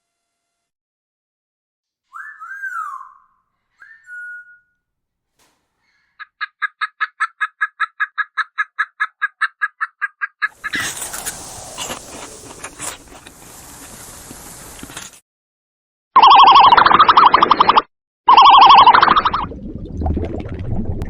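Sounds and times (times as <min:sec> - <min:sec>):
turkey calls: 0:02.1 - 0:04.6, 0:05.8 - 0:12.8.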